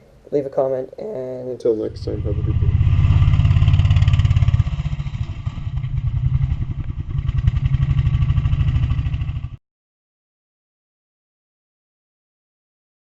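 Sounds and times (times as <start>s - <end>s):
go-kart engine running: 1.9s - 9.6s.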